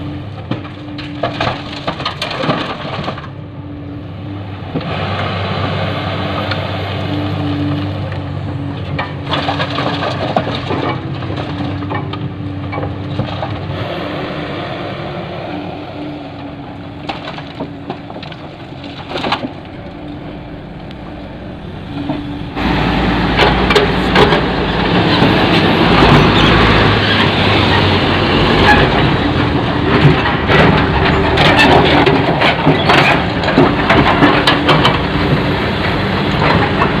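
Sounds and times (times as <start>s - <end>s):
diesel engine running: 0.0s - 37.0s
stones clattering into truck bed: 0.5s - 3.3s, 17.1s - 19.6s.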